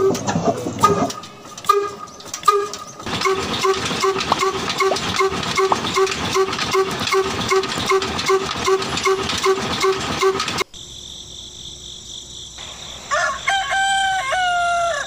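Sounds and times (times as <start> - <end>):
small diesel engine chugging: 0.0 - 10.7
steady hiss: 10.0 - 13.5.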